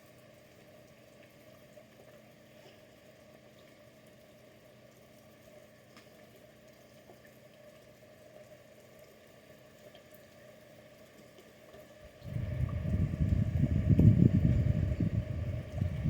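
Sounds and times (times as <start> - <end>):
low hum: 12.0 - 16.0
loud rough low rumbling: 12.2 - 16.0.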